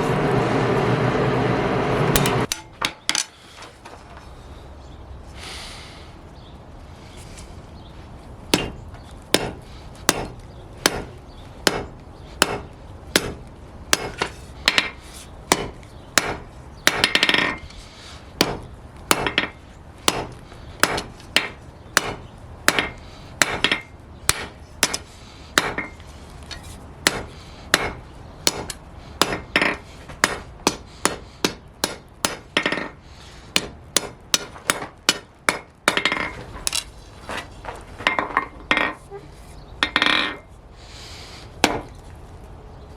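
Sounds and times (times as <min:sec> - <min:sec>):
hammer on anvil: 0:02.2 - 0:03.3, 0:08.5 - 0:08.8, 0:09.4 - 0:17.6, 0:18.4 - 0:26.0, 0:27.0 - 0:33.0, 0:33.6 - 0:36.3.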